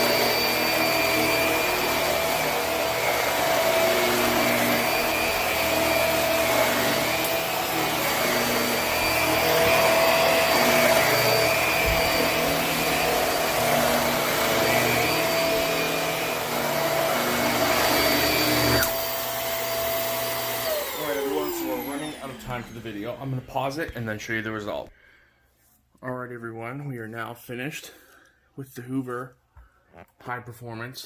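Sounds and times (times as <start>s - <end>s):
vacuum cleaner running on carpet: 0.0s - 23.6s.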